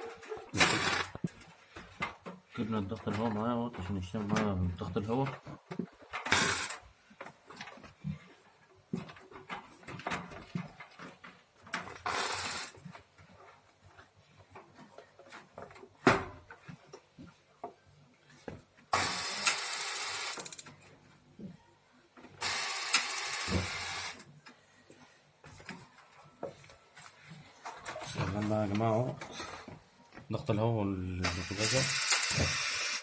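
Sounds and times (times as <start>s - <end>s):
compressed air hissing: 31.2s - 33.0s.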